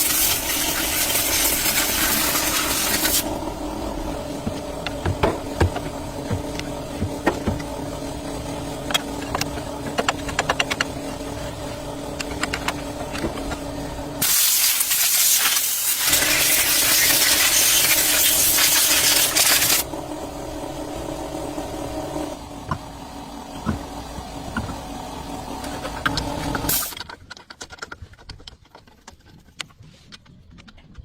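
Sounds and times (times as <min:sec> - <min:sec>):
machine hum: 0:00.0 - 0:14.4, 0:16.0 - 0:26.8
loud spray hiss: 0:14.2 - 0:19.9.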